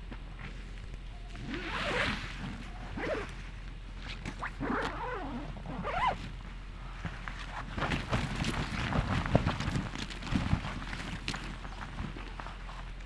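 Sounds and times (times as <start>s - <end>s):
zipper pulled: 1.3s - 3.4s, 4.1s - 6.2s.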